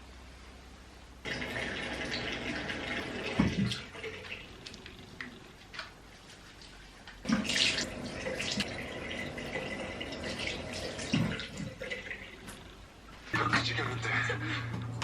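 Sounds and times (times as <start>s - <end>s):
water running into a sink: 1.3s - 4.4s, 7.2s - 12.4s.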